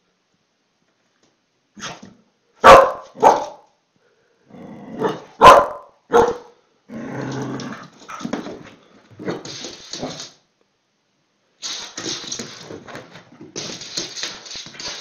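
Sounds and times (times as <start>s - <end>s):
dog barking: 2.6s - 3.7s, 5.0s - 6.5s
dog growling: 4.5s - 5.4s, 6.9s - 8.4s.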